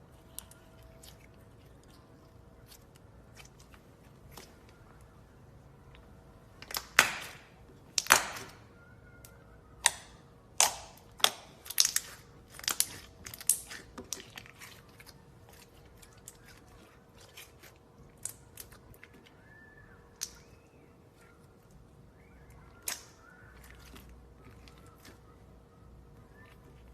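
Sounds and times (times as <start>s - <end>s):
slime squeezed with wet pops: 9.2s - 14.8s, 22.2s - 25.3s.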